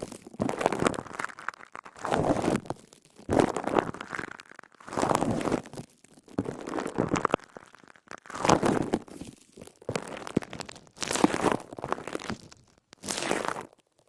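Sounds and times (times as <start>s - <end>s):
wet sponge squelching: 13.0s - 13.7s.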